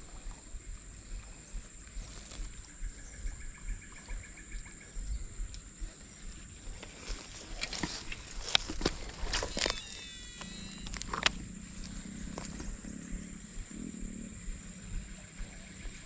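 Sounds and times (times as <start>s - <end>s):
pulsed animal calls: 0.0s - 16.0s
steady high-pitched whine: 0.0s - 16.0s.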